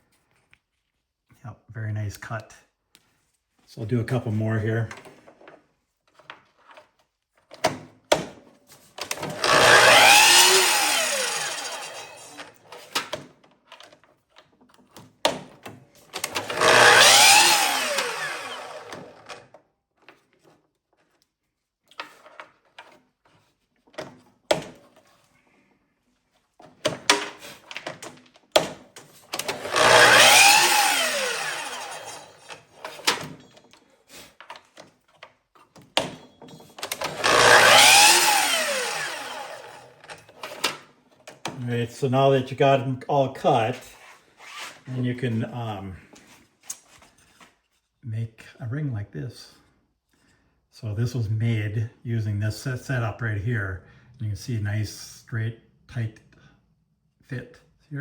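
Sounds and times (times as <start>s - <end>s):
clicks and knocks of handling wood: 4.9s - 9.3s, 19.2s - 25.3s, 32.5s - 37.2s
miter saw cutting wood: 9.1s - 12.6s, 16.2s - 19.4s, 29.4s - 33.1s, 36.9s - 40.1s.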